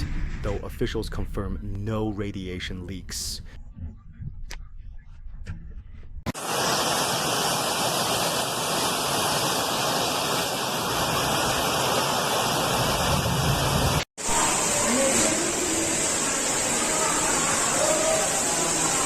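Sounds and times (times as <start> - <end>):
steady rushing noise: 6.3 - 19.0.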